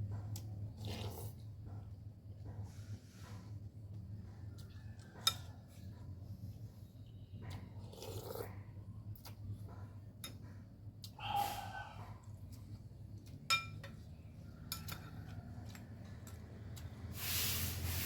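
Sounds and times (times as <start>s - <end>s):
soft eating sounds: 0.0s - 18.0s
utensils clinking on bowl: 13.4s - 16.5s.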